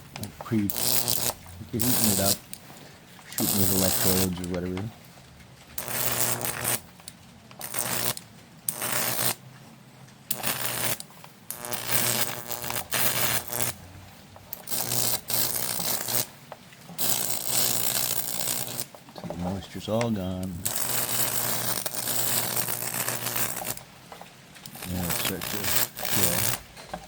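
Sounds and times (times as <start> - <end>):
low transformer hum: 0.0 - 9.1, 10.2 - 16.3
high voltage sizzling and crackling: 0.0 - 9.5, 10.2 - 27.0.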